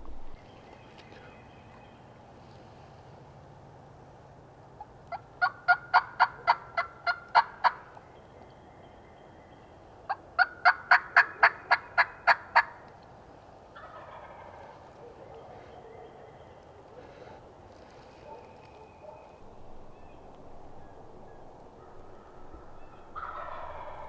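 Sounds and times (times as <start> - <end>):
faint turkey gobble: 4.8 - 8.0, 13.7 - 24.0
turkey yelping: 13.8 - 15.6, 20.8 - 24.0.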